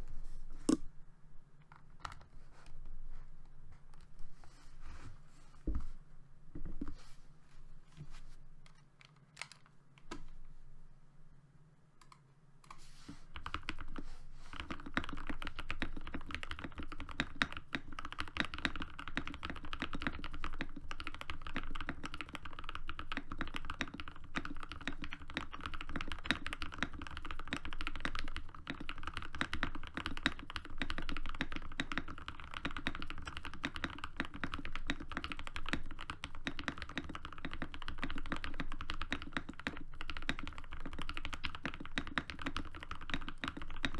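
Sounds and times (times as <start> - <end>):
fast typing on mechanical keyboard: 13.3 - 43.9.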